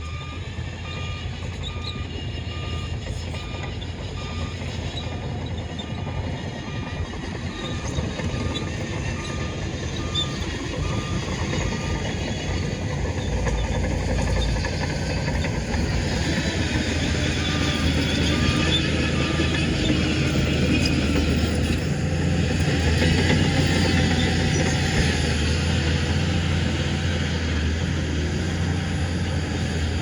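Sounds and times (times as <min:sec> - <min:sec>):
reversing alarm beeping: 0:00.0 - 0:21.8
heavy diesel machinery running: 0:00.0 - 0:30.0.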